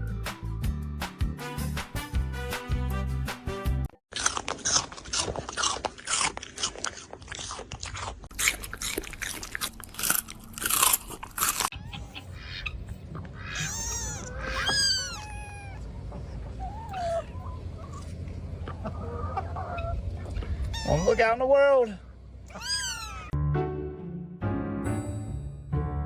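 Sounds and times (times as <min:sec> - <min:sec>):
pet chewing and crunching: 0:04.1 - 0:18.8.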